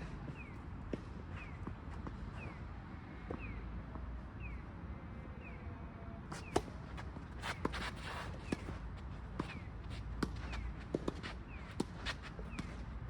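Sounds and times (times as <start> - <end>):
tennis ball struck and bouncing: 6.3 - 12.8
shoes scuffing on court: 6.3 - 13.0.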